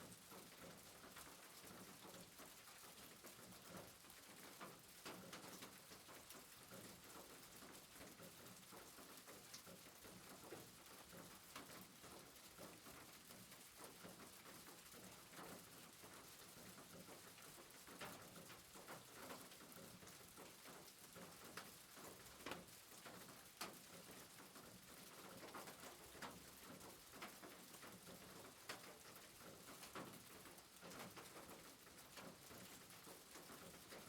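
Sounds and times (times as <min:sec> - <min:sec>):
soft rain hiss: 0:00.0 - 0:34.0.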